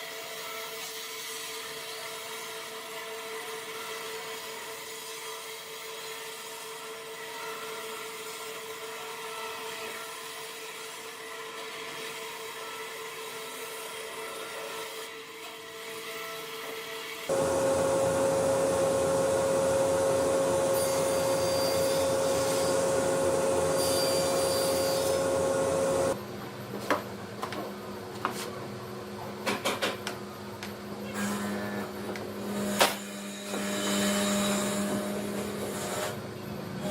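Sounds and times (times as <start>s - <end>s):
high-pitched power tool: 17.3s - 26.2s
power tool motors whining: 17.3s - 26.2s.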